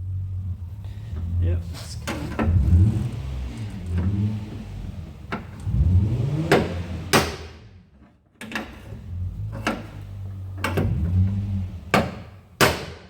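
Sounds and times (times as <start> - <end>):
low rumbling: 0.0 - 7.8
metal knocks on car body panel: 12.0 - 13.0.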